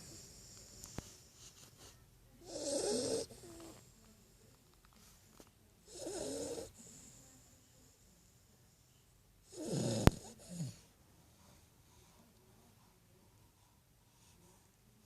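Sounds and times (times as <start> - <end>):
puppy snoring: 0.0 - 3.9, 5.8 - 7.4, 9.4 - 10.9.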